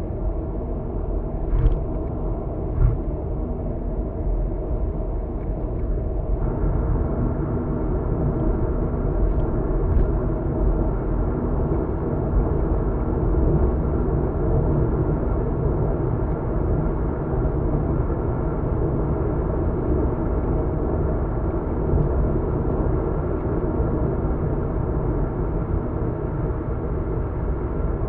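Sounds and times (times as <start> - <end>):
car cabin road rumble: 0.6 - 13.6
short thumps: 2.7 - 3.1.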